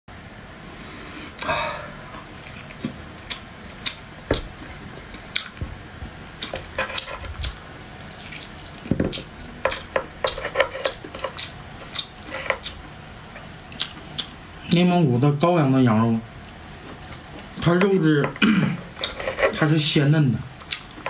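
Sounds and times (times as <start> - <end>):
wet chewing clicks and smacks: 13.7 - 14.4, 20.6 - 21.0.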